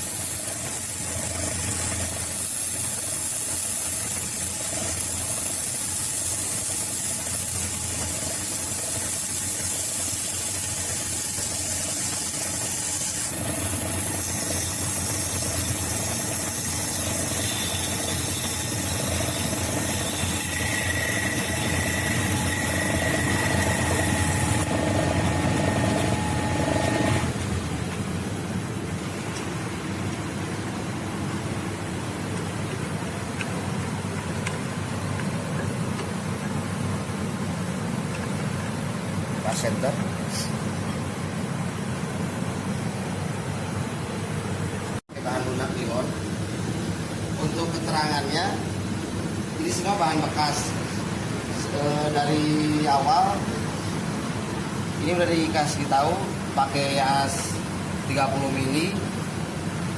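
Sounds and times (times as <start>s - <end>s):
lathe motor running: 0.0s - 28.0s.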